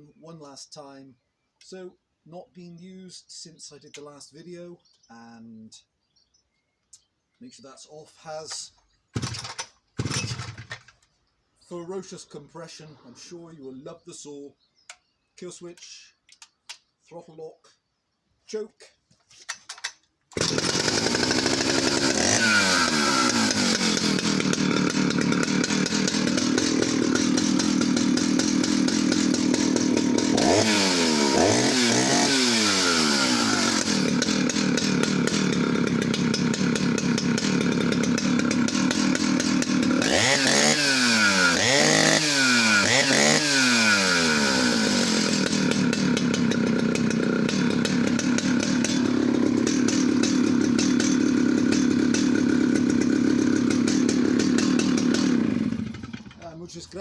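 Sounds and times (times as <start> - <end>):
chainsaw running: 9.2 - 10.9, 19.8 - 57.0.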